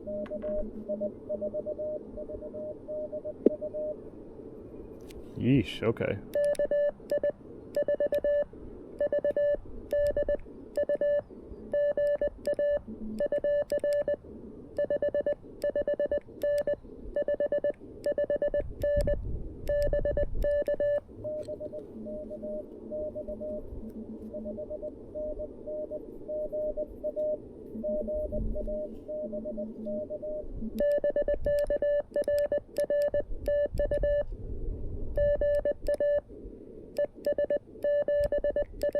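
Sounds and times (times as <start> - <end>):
faint morse code signal: 0.0 - 4.0, 6.3 - 34.3, 35.1 - 36.3, 36.9 - 38.9
lower-pitched morse signal: 0.0 - 4.0, 6.3 - 34.3, 35.1 - 36.3, 37.0 - 38.9
morse code sidetone: 0.0 - 4.0, 6.3 - 14.2, 14.8 - 34.3, 35.2 - 36.3, 37.0 - 38.9
radio band noise: 20.5 - 31.2.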